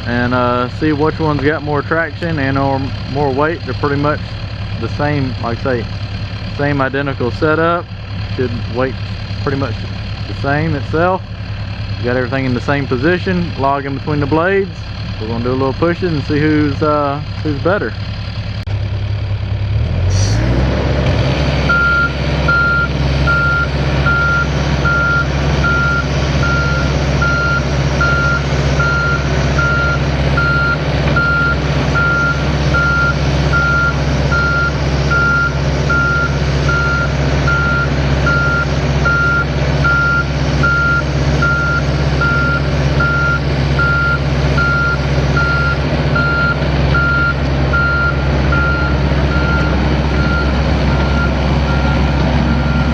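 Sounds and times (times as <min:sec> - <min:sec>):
excavator diesel engines revving: 0:00.0 - 0:52.9
travel alarm beeping: 0:21.7 - 0:52.9.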